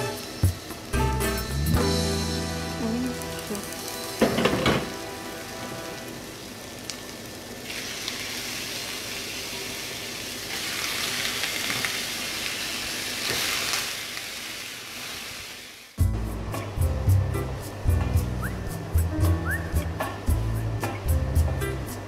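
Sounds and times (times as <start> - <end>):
onion sizzling in hot oil: 0.0 - 16.0.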